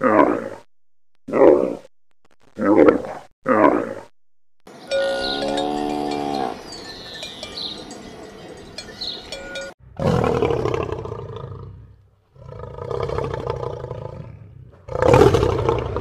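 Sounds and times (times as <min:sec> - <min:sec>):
cowbell clinking: 0:04.7 - 0:09.8
lion roaring: 0:10.0 - 0:16.0.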